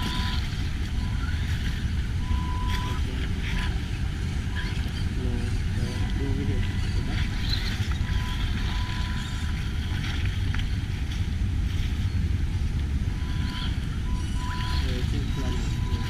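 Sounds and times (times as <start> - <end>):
wind buffeting microphone: 0.0 - 16.0
faint high whine: 13.0 - 16.0.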